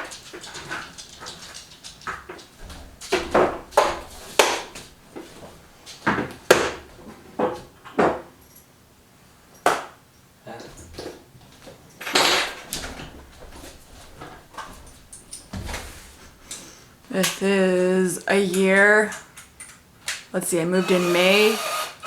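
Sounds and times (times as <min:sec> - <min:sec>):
hard objects knocking: 0:00.0 - 0:05.5
scraping rustle: 0:00.0 - 0:06.1, 0:12.4 - 0:17.1.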